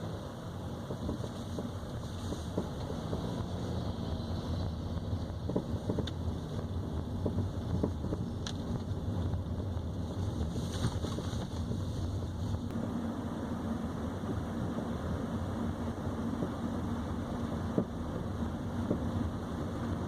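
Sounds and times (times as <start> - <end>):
car road rumble: 0.0 - 20.0.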